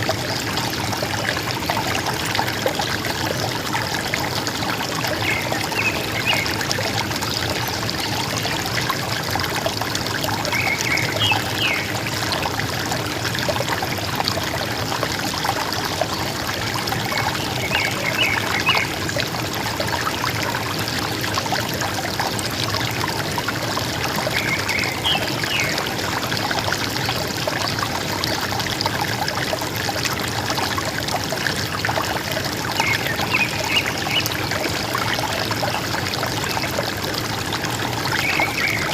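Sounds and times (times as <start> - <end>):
river water gurgling: 0.0 - 38.9.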